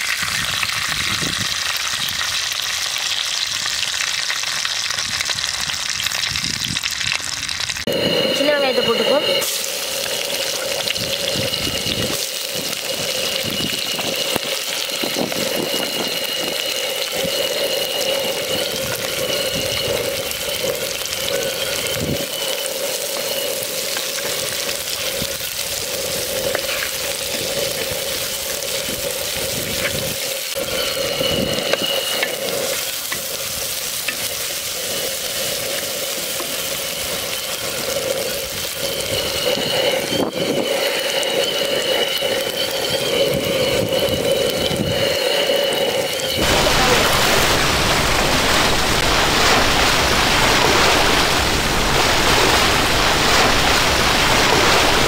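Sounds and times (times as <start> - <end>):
shallots sizzling in hot oil: 0.0 - 55.0
thin high tone: 7.8 - 28.7, 35.2 - 55.0.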